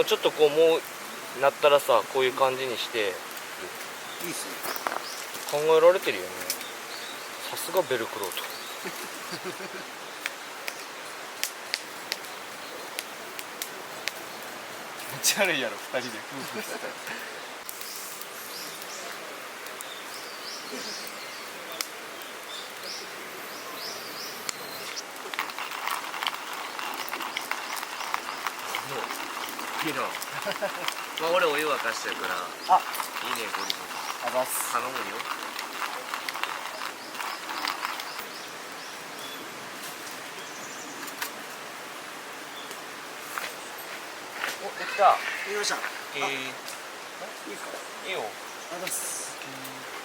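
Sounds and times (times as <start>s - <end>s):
bird chirping: 3.9s - 11.0s, 16.0s - 39.6s
rattle of clicks: 24.5s - 38.4s
hand coffee mill grinding: 24.5s - 38.5s.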